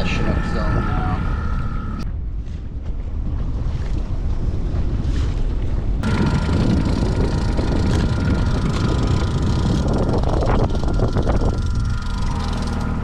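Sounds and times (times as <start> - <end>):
boat motor rumble and whine: 0.0 - 2.1, 5.9 - 13.0.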